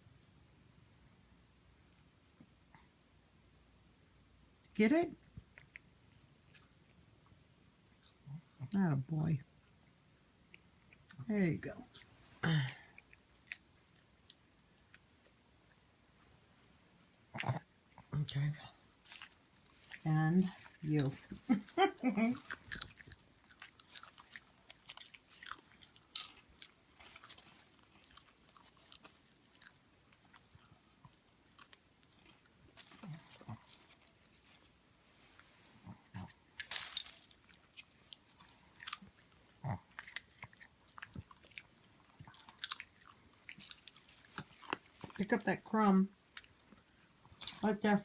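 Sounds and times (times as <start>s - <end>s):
pet crunching popcorn: 17.3s - 34.8s, 35.8s - 48.0s.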